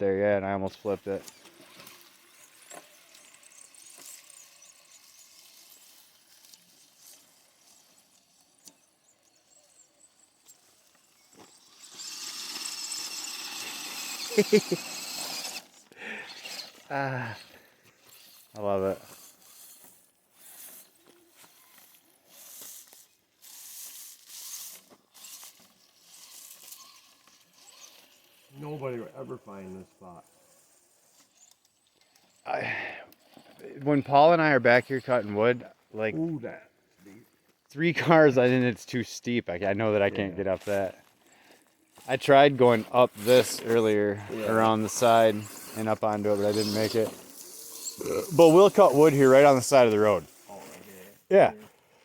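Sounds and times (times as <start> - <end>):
toy trucks crackling over gravel: 0.1 - 52.0
faint high-pitched chirping: 0.6 - 12.4.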